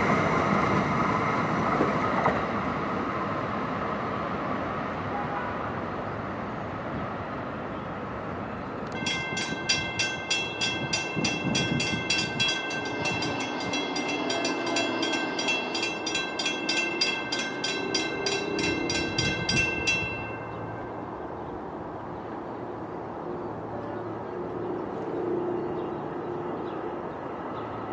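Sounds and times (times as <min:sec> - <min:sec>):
passing train rumble: 0:00.0 - 0:27.9
railroad bell ringing: 0:08.9 - 0:21.6.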